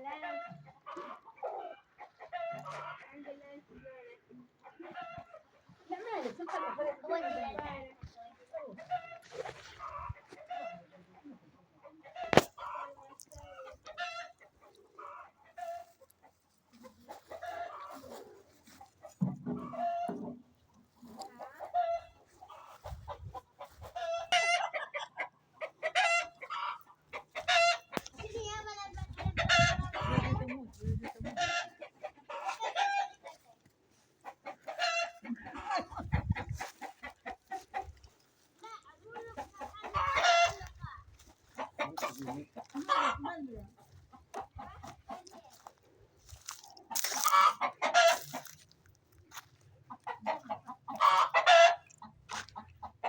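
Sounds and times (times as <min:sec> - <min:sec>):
chickens clucking: 0:00.0 - 0:53.0
chicken drawn-out call: 0:17.0 - 0:28.0, 0:31.2 - 0:33.6, 0:34.2 - 0:38.2, 0:46.2 - 0:53.0.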